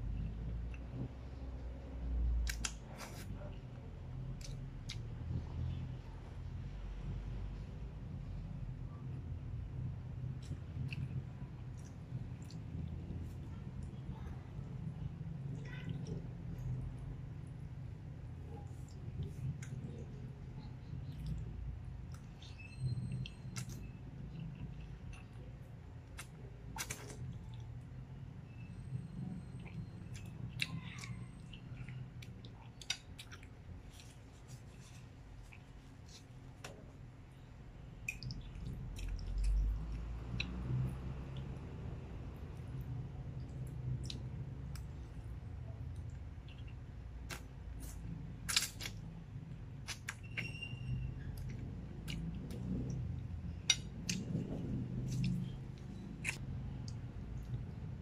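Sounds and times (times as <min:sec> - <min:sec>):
steady low hum: 0:00.0 - 0:50.2, 0:50.8 - 0:58.0
person chewing food: 0:10.2 - 0:13.4, 0:29.6 - 0:36.9, 0:38.0 - 0:41.8, 0:42.6 - 0:45.2, 0:45.8 - 0:49.1, 0:51.3 - 0:58.0.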